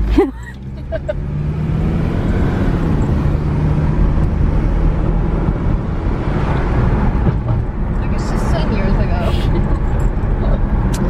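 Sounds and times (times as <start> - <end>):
car engine and tyre rumble: 0.0 - 11.0
constant low hum: 2.7 - 11.0.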